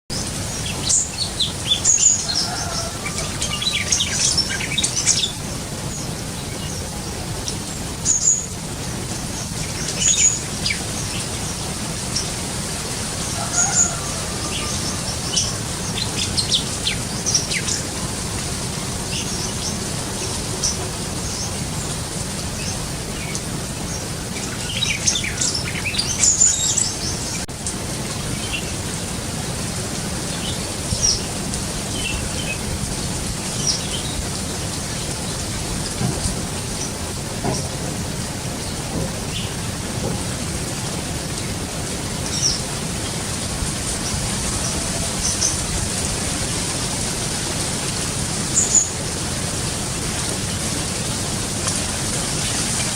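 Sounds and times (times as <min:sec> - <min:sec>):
bird chirping and whistling: 0:09.9 - 0:10.8.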